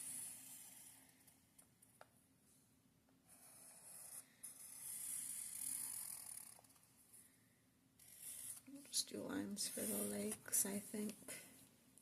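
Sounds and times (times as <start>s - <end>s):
marker scratching on paper: 3.3s - 6.6s, 8.0s - 8.9s, 9.6s - 10.4s.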